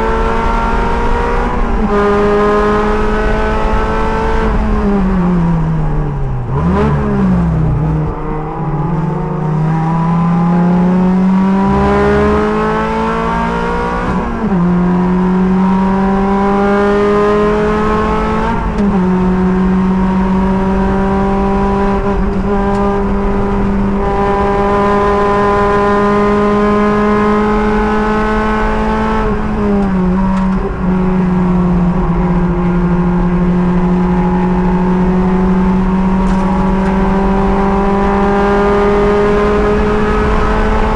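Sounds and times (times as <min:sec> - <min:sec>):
race car engine revving: 0:00.0 - 0:40.9
wind noise: 0:10.6 - 0:40.9.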